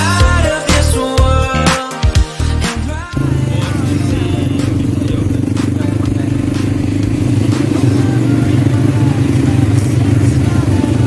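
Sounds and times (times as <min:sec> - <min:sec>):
quad bike engines running: 0:03.1 - 0:11.0.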